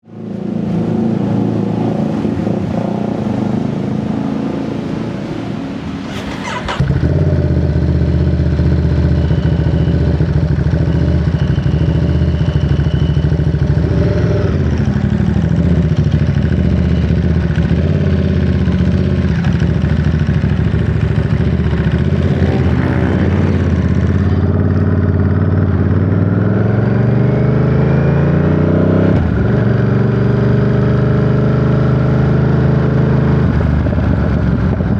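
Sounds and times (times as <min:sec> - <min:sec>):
motorcycle engine running: 0:06.1 - 0:28.0.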